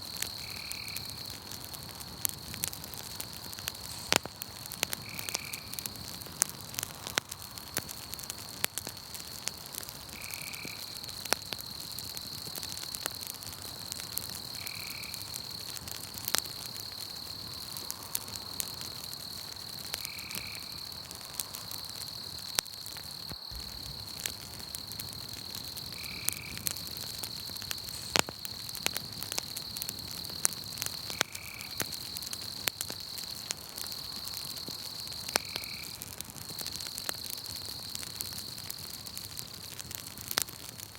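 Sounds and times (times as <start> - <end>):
insect trill: 0.0 - 39.0
campfire crackling and popping: 0.0 - 40.9.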